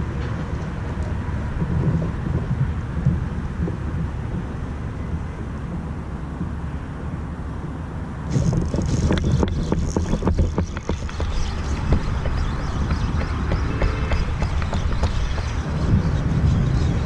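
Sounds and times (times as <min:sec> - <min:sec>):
wind buffeting microphone: 0:00.0 - 0:17.0
sharp clicks and hiss: 0:08.2 - 0:16.2.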